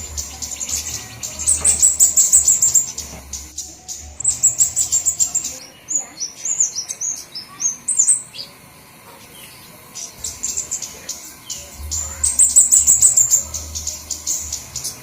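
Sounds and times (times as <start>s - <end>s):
high ticking bird notes: 0.0s - 8.6s, 9.4s - 15.0s
songbirds chirping: 0.0s - 15.0s.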